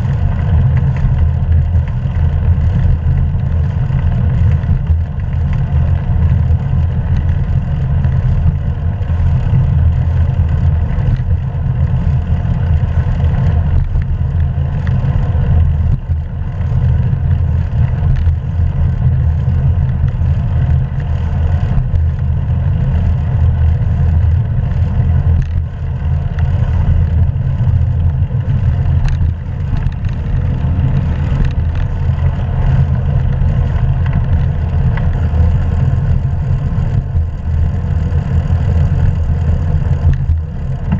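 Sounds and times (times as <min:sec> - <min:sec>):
wind and road noise rumble: 0:00.0 - 0:40.9.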